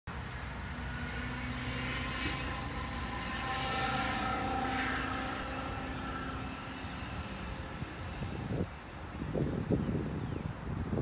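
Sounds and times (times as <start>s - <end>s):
locomotive low rumble: 0.1s - 11.0s
sustained horn tones: 0.7s - 8.6s.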